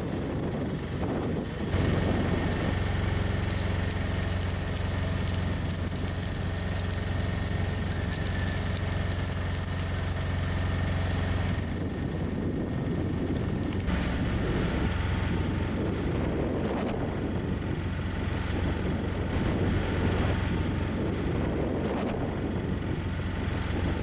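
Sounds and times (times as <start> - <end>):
engine humming steadily: 0.0 - 24.0.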